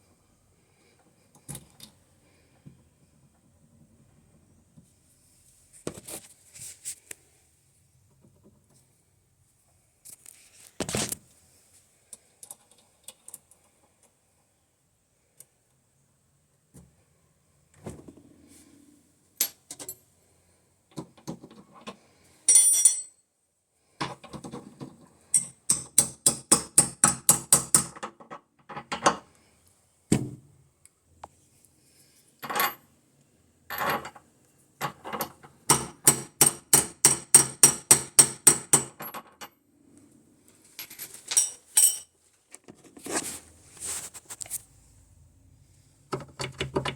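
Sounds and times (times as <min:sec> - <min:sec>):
metal tools clinking: 0:22.5 - 0:23.2, 0:32.4 - 0:32.8, 0:40.8 - 0:42.1.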